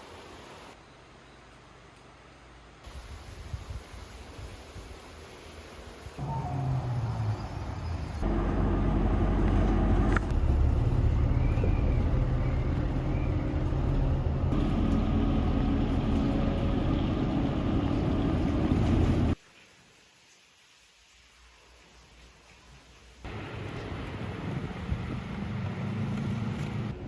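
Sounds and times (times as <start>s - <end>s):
road noise: 6.1s - 19.4s, 23.3s - 27.0s
vehicle engine hum: 6.2s - 19.4s, 23.3s - 27.0s.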